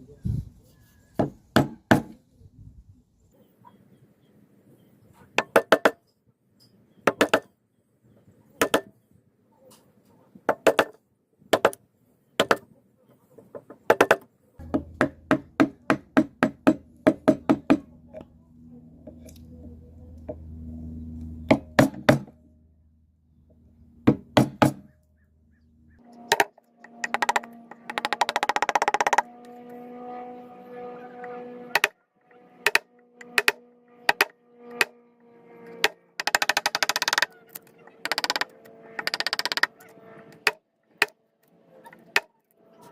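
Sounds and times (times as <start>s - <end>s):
low steady hum: 14.6s - 26.8s.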